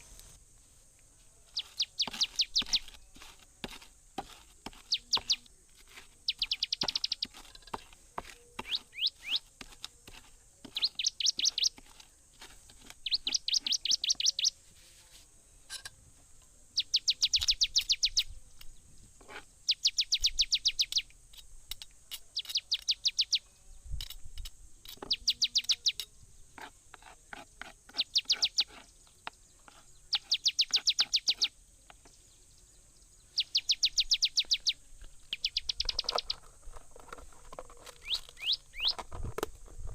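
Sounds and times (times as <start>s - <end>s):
songbird trilling: 1.5s - 3.2s, 4.7s - 9.5s, 10.6s - 11.8s, 13.0s - 14.6s, 16.8s - 24.2s, 24.8s - 26.1s, 27.9s - 36.5s, 38.0s - 39.0s.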